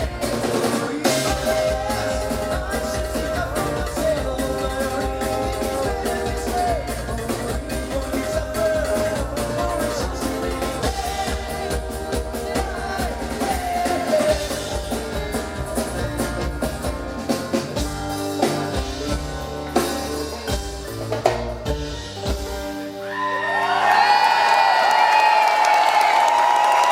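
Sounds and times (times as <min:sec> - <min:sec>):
drum kit hits: 0:00.0 - 0:22.8
live rock band playing: 0:00.0 - 0:24.8
crowd cheering: 0:22.8 - 0:26.9.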